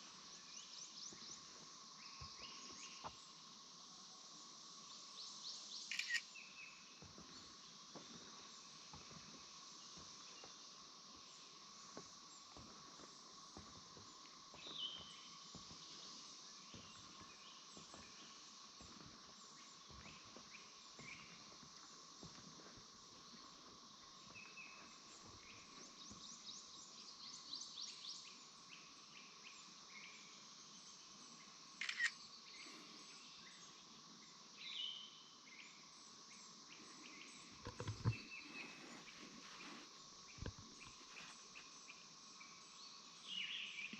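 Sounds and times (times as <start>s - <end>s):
insects chorus: 0.0s - 43.9s
footsteps on wooden boardwalk: 7.0s - 26.2s.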